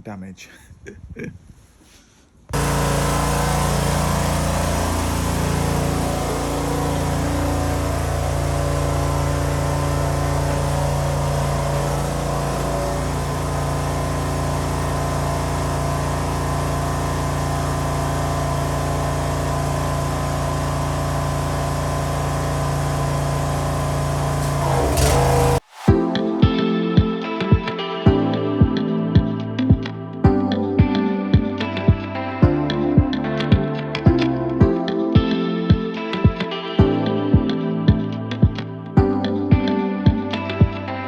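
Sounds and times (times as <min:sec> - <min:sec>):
pressure washer engine running: 0:02.6 - 0:25.9.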